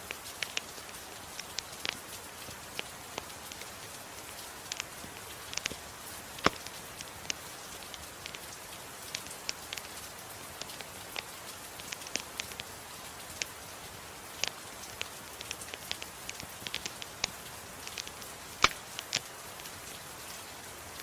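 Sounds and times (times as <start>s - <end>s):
gentle rain hiss: 0.0s - 21.0s
wood fire crackling: 0.0s - 21.0s
loud sharp fire pop: 18.6s - 18.8s.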